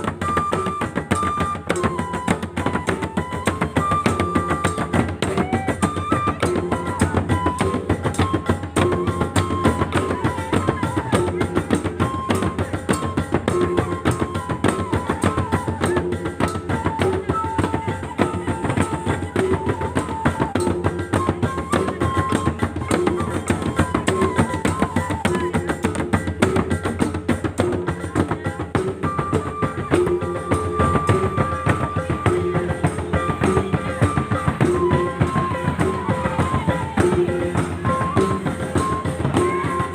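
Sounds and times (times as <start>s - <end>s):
fast drum ensemble: 0.0s - 39.9s.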